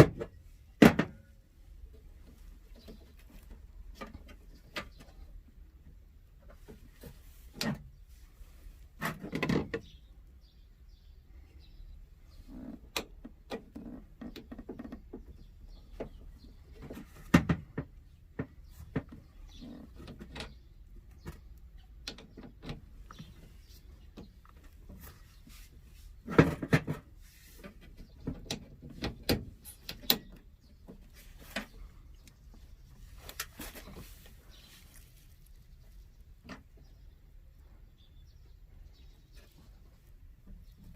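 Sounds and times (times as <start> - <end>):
hands handling tools: 30.9 - 35.7.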